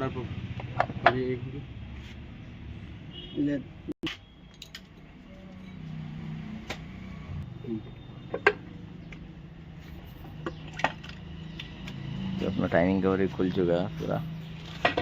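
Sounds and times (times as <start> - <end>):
metal tools clinking: 4.4 - 6.0.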